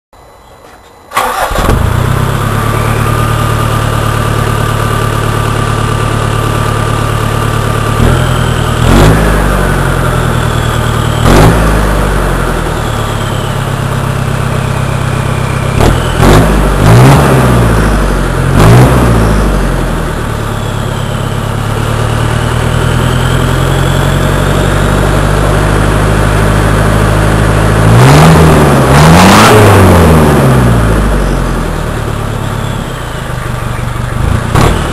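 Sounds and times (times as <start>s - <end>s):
diesel engine idling and revving: 0.2s - 34.9s
turbo whistle: 8.0s - 14.0s, 20.2s - 24.8s, 32.1s - 33.6s.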